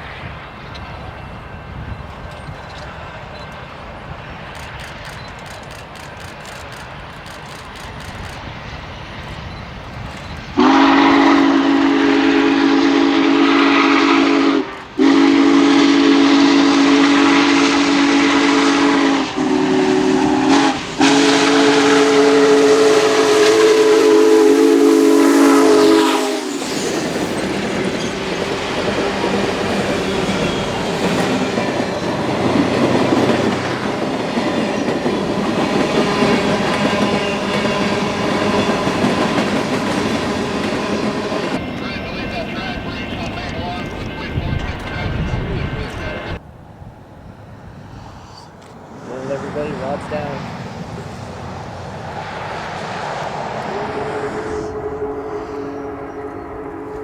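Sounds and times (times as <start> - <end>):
train rumbling and clattering on rails: 0.0 - 57.0
steam locomotive chime whistle: 10.5 - 28.2, 53.7 - 57.0.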